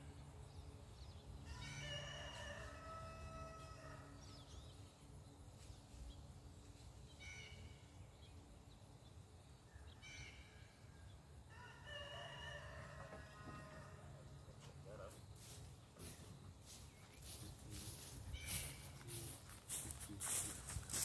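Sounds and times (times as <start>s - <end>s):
faint bird calls: 16.7s - 19.4s.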